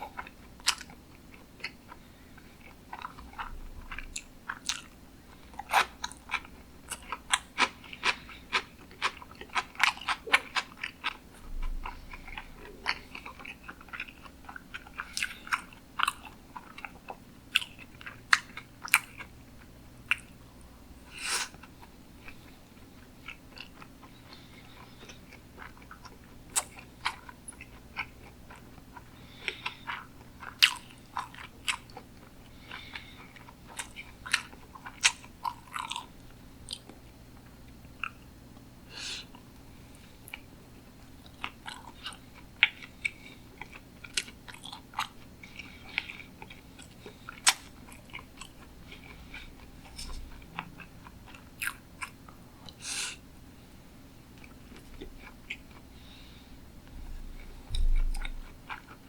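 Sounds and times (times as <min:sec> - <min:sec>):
person chewing wetly: 0:00.0 - 0:20.4, 0:21.1 - 0:52.8, 0:54.4 - 0:56.3, 0:57.2 - 0:59.0.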